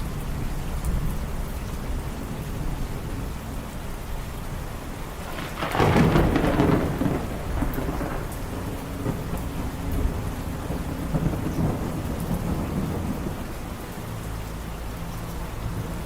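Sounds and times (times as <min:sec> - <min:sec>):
rumble of thunder: 0:00.0 - 0:16.0
steady rain: 0:00.0 - 0:16.0.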